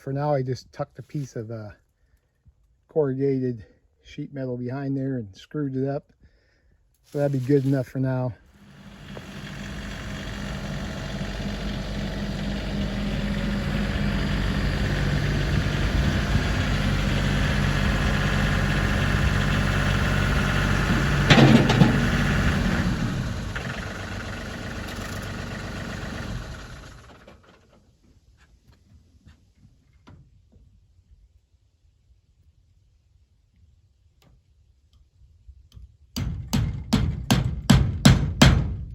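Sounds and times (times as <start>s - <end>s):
engine running: 8.4s - 27.8s
loud clatter: 20.3s - 27.4s.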